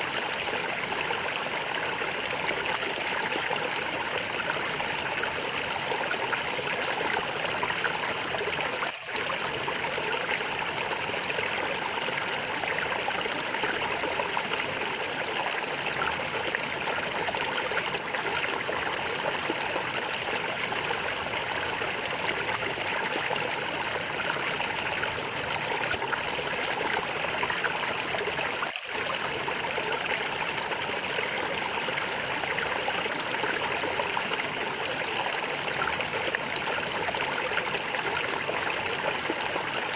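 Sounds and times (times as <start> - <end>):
small stream gurgling: 0.0 - 39.9.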